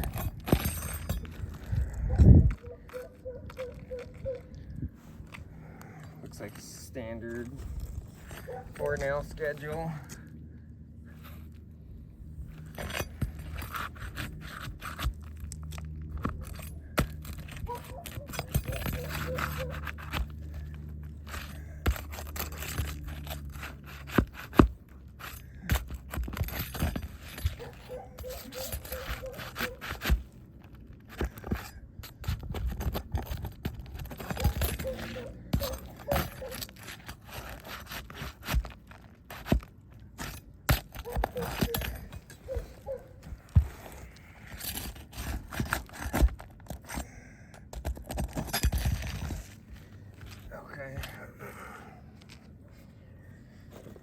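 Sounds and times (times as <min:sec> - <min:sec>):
tool scraping shingle grit: 0:00.0 - 0:10.3, 0:12.4 - 0:52.5
nails pulled from shingles: 0:12.5 - 0:51.2.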